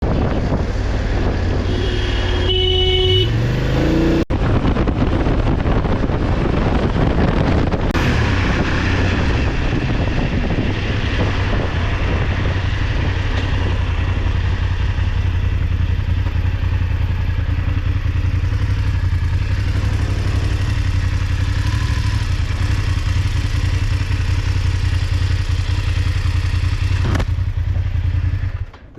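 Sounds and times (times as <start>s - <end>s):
motorcycle engine running: 0.0s - 28.9s
wind and road noise: 0.0s - 28.9s
engine revving: 0.4s - 27.4s
horn sounding: 1.6s - 3.7s.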